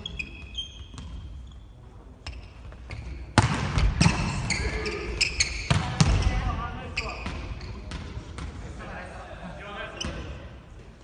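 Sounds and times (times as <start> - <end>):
sneakers squeaking on floor: 0.0 - 8.6, 9.9 - 10.4
volleyballs struck and bouncing: 2.3 - 4.5, 5.4 - 6.4, 7.2 - 8.6.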